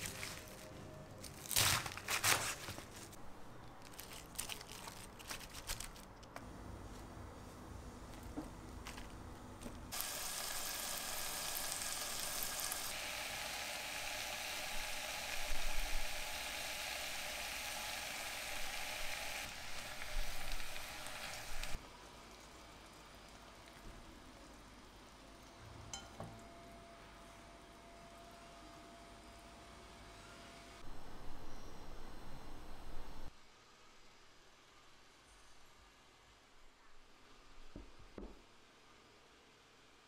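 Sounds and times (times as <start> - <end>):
vegetables sizzling in a pan: 9.9 - 21.8.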